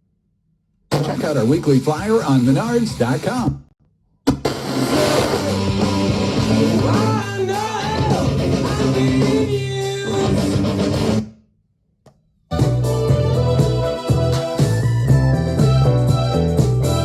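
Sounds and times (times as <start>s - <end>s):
rock song over loudspeakers: 4.9s - 11.2s.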